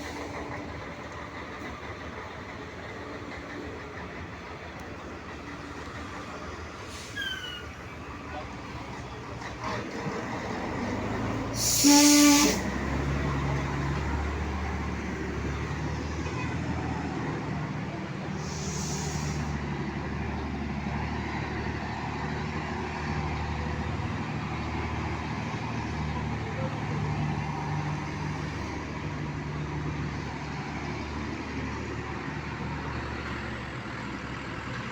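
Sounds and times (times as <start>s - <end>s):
diesel engine rumble: 0.0s - 34.9s
truck air horn blast: 11.6s - 12.8s.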